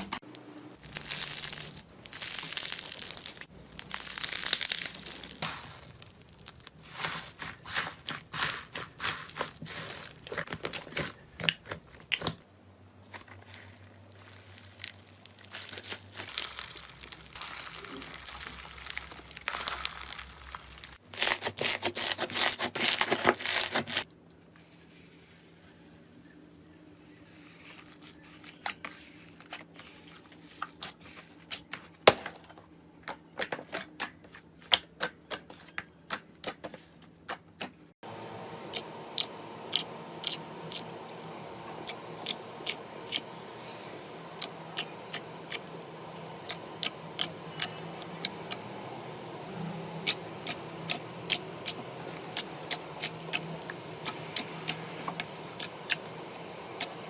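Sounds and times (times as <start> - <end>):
steady low hum: 38.0 - 57.0.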